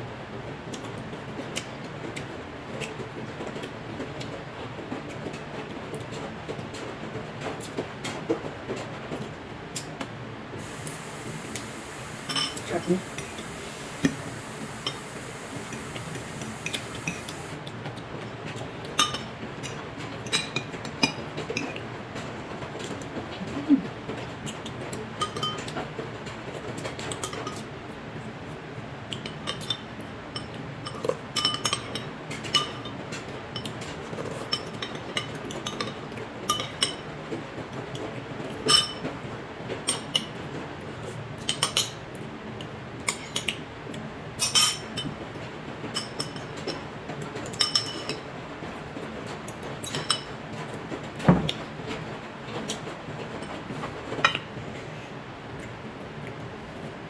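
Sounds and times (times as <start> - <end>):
cutlery clinking against dishes: 12.2 - 17.5, 19.0 - 19.3, 25.2 - 25.8, 30.4 - 33.0, 33.6 - 37.0, 38.6 - 39.1, 41.4 - 42.0, 44.4 - 45.2, 45.9 - 46.8, 47.5 - 48.2, 49.8 - 50.3.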